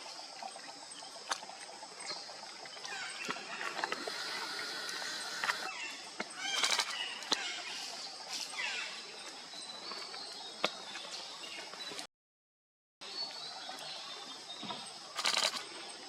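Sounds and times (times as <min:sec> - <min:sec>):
birds calling: 0:02.0 - 0:09.0, 0:14.6 - 0:16.0.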